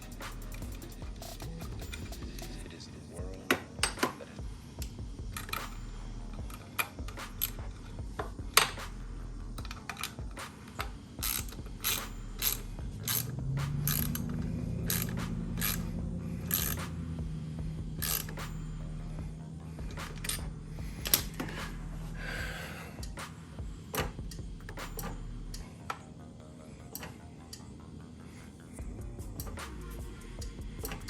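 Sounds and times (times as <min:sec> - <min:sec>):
ratchet wrench clicking: 0:00.0 - 0:02.6, 0:04.8 - 0:19.2, 0:19.8 - 0:21.9, 0:23.8 - 0:25.7, 0:26.9 - 0:27.6, 0:28.8 - 0:31.0
low steady hum: 0:00.0 - 0:31.0.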